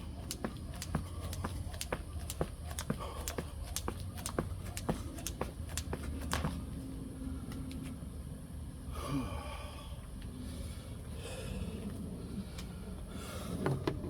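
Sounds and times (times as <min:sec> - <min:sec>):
person breathing heavily: 0:02.9 - 0:03.8.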